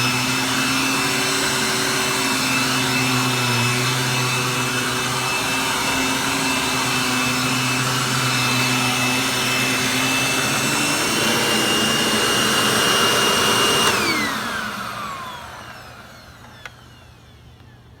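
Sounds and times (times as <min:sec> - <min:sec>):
vacuum cleaner motor whine: 0:00.0 - 0:18.0
click: 0:16.4 - 0:16.8, 0:17.6 - 0:17.8.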